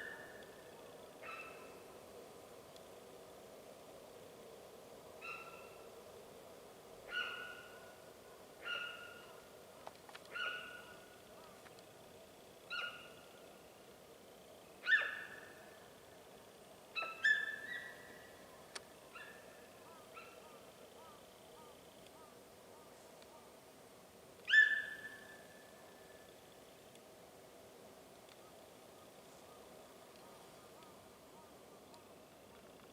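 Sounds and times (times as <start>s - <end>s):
deer piping calls: 7.1s - 7.8s, 8.6s - 9.4s, 24.5s - 25.4s.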